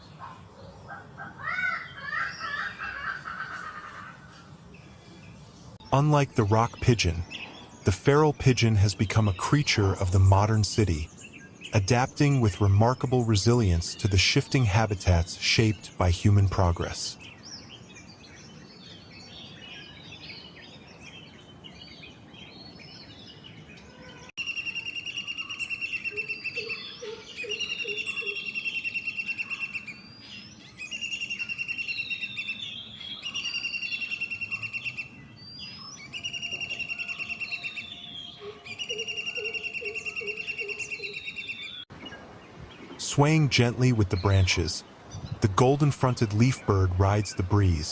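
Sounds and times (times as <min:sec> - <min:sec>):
loud bird song with trills: 0:00.0 - 0:47.9
low pulsing bird notes: 0:05.8 - 0:47.9
faint bird chirps: 0:17.2 - 0:43.1.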